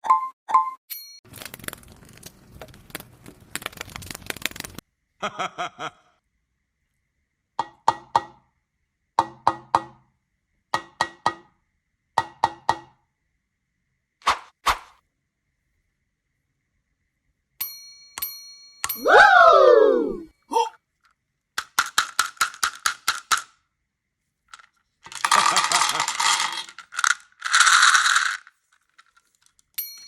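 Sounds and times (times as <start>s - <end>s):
dense crackling crunching: 1.3s - 4.8s
sharp hollow ringing knocks: 10.8s - 11.5s.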